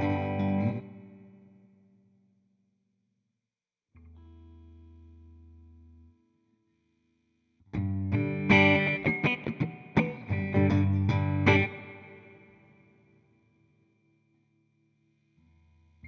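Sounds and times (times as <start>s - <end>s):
clean electric guitar chords: 0.0s - 1.4s, 7.8s - 12.9s.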